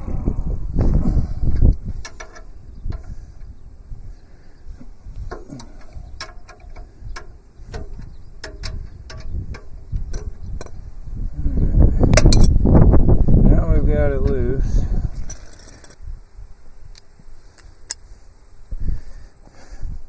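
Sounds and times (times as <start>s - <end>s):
bolt rumbling and clatter: 0.6s - 16.0s
wrench metallic clicks and taps: 1.6s - 3.2s, 5.2s - 10.8s.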